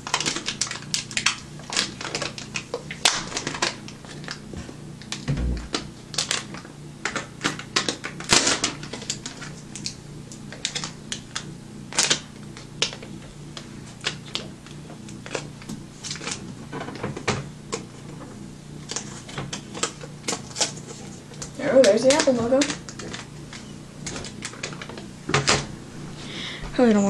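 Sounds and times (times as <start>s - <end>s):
faint low hum: 5.2s - 6.3s
plastic film crackling: 18.8s - 25.1s.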